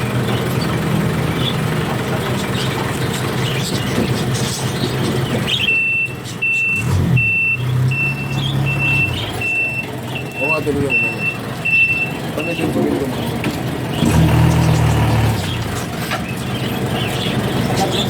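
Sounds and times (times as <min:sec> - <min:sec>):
truck engine running: 0:00.0 - 0:18.0
reversing alarm beeps: 0:05.6 - 0:12.9.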